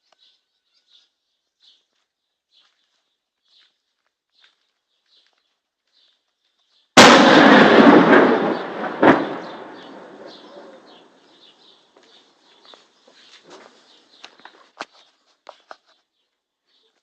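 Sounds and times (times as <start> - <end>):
artillery shell explosion: 7.0 - 11.3.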